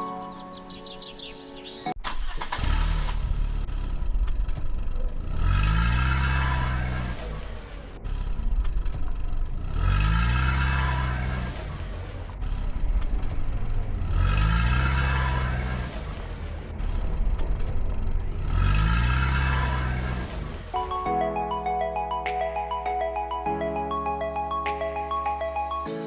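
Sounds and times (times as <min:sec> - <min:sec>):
car engine revving: 0:02.1 - 0:20.8.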